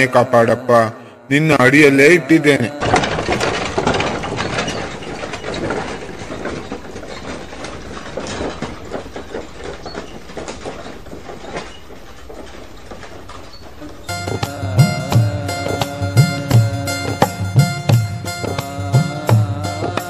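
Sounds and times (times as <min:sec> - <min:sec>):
cart clattering rattle: 0:01.8 - 0:20.0.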